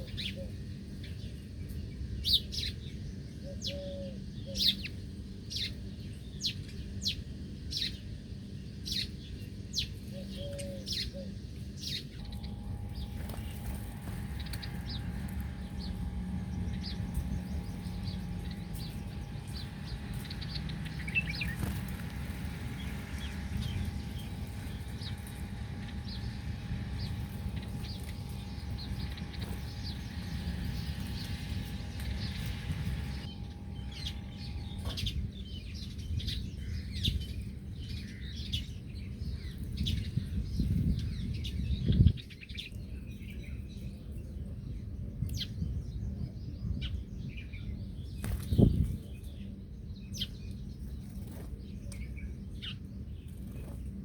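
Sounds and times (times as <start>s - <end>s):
small birds chirping: 0.0s - 54.0s
steady low rumble: 10.9s - 54.0s.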